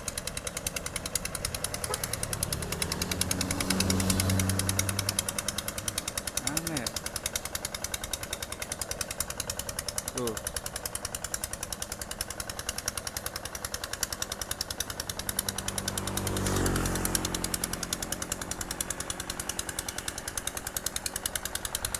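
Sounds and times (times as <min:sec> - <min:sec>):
engine passing by: 0:00.0 - 0:07.0, 0:14.6 - 0:21.9
diesel engine chugging: 0:00.0 - 0:21.9.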